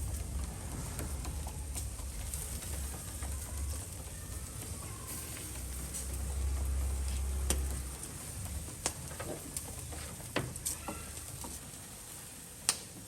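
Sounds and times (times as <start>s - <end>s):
low rumble: 0.0s - 4.6s
food sizzling on a grill: 4.3s - 13.0s.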